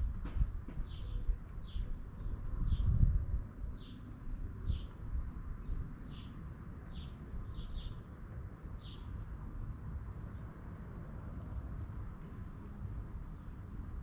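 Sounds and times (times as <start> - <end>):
small birds chirping: 3.8 - 8.1, 8.8 - 9.2, 12.2 - 13.6.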